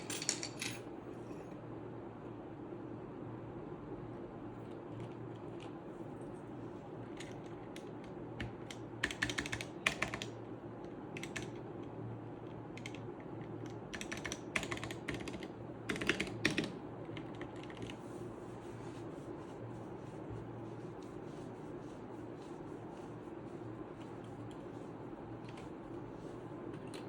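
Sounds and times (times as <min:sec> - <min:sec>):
mechanical keyboard typing: 0:07.2 - 0:10.4, 0:11.2 - 0:11.6, 0:12.8 - 0:18.0.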